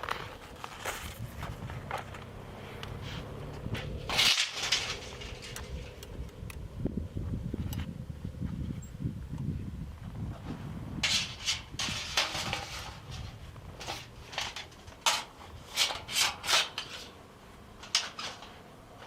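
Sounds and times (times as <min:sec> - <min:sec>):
rubbing or scraping strokes: 0:00.0 - 0:06.0, 0:10.3 - 0:17.2.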